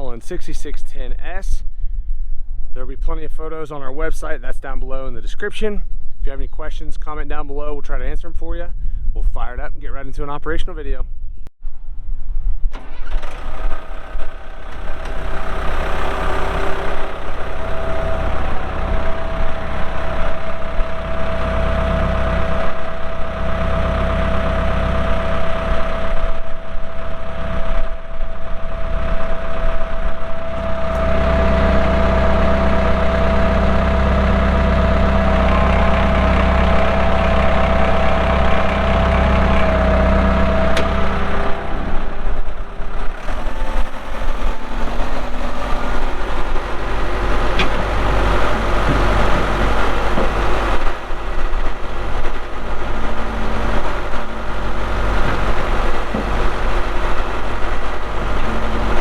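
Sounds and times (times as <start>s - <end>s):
tractor diesel engine running: 12.7s - 59.0s.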